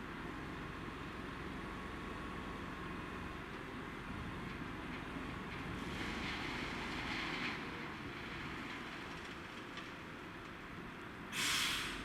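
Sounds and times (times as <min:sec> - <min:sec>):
diesel train rumbling: 0:02.6 - 0:12.0
hissing rail and wheel noise: 0:04.9 - 0:10.4, 0:11.2 - 0:12.0.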